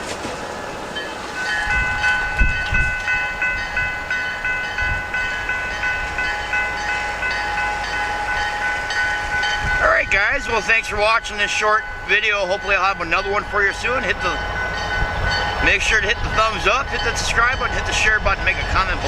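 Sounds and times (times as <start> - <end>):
locomotive engine and wheels rumbling: 0.0 - 19.0.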